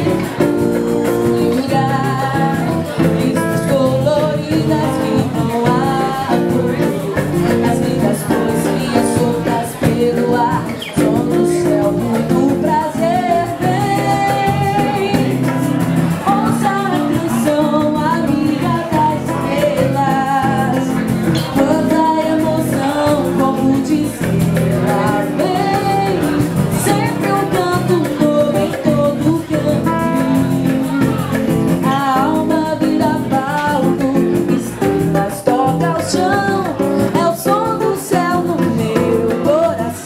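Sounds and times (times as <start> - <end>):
guitar accompaniment: 0.0 - 40.0
person singing: 0.0 - 40.0.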